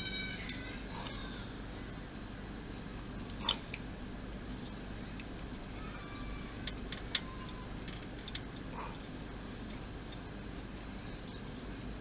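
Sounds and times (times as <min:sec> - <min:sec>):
steady low hum: 0:00.0 - 0:12.0
plastic parts clicking: 0:06.6 - 0:08.5.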